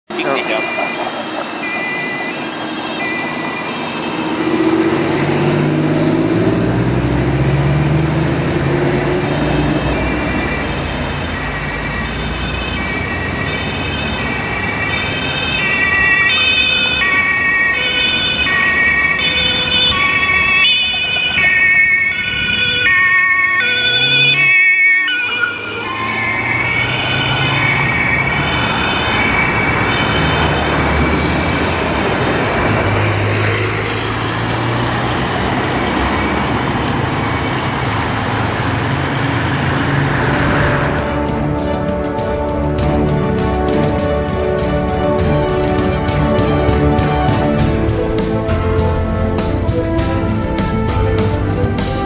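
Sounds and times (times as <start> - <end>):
engine and traffic noise: 0.1 - 52.0
police siren two-tone: 0.2 - 5.4, 9.6 - 31.9.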